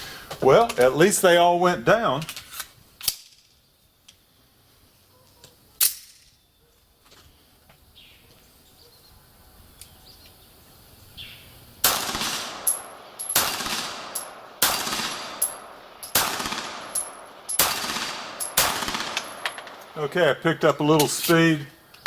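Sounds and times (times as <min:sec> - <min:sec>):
pistol shots: 0:11.8 - 0:20.0.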